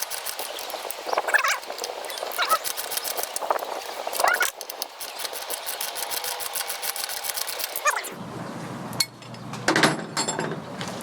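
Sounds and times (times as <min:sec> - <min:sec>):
sharp metallic clicks: 0:00.0 - 0:08.0
ratchet wrench clicking: 0:04.1 - 0:07.8.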